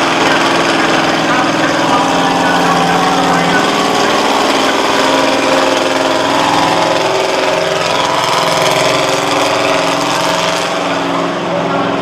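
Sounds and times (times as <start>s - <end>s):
monster truck engine running: 0.0s - 12.0s.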